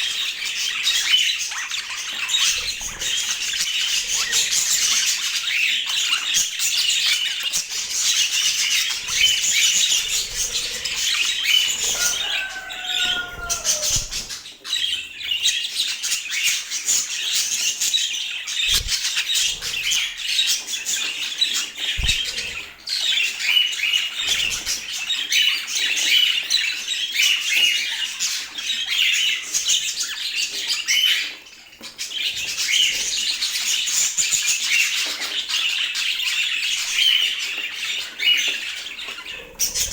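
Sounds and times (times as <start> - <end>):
budgerigars chattering: 0.0 - 26.8, 38.1 - 39.9.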